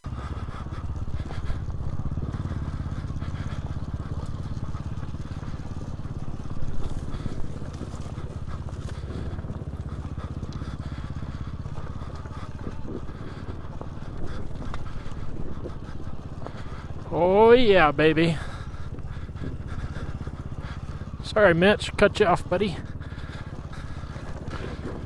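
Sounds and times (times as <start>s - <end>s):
dirt bike engine running: 0.0s - 25.0s.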